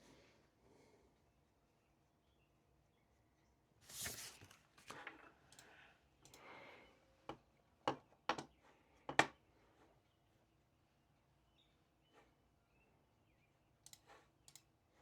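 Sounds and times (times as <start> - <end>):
soft rustling: 3.8 - 5.0.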